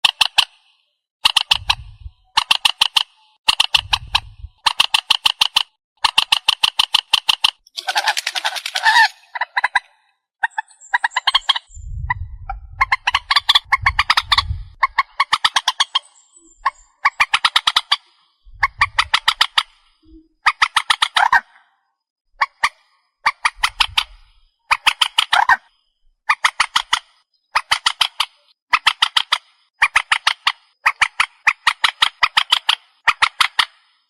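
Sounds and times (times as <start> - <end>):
bird rattling calls: 1.2 - 12.1, 12.7 - 21.5, 22.4 - 25.7, 26.3 - 33.8
low thuds: 11.7 - 14.8, 18.5 - 19.3.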